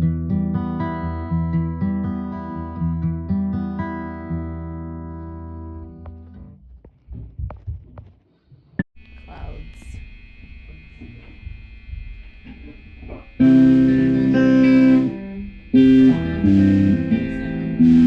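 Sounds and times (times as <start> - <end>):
faint hum: 8.7 - 18.0
guitar chords ringing: 9.0 - 18.0.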